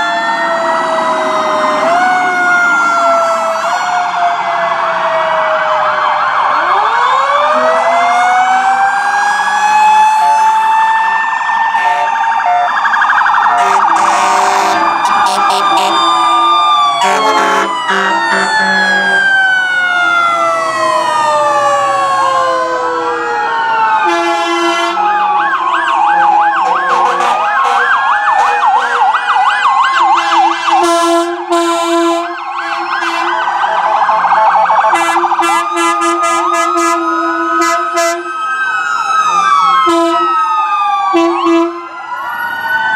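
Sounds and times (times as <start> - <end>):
fast warbling siren yelp: 0.0 - 42.9
fire truck sirens wailing: 0.0 - 42.9
air horn blasts: 13.5 - 16.1, 17.0 - 19.2, 24.0 - 25.1, 26.6 - 29.0, 30.1 - 33.4, 35.0 - 38.3, 39.3 - 40.4, 41.2 - 41.8.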